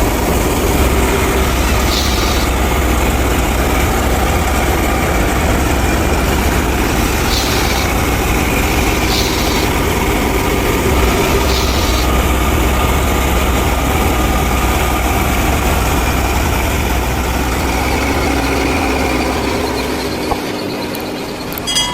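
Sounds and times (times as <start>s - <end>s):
miniature tractor and thresher running: 0.0s - 21.9s
short hissing bursts: 1.0s - 3.6s, 6.9s - 12.5s.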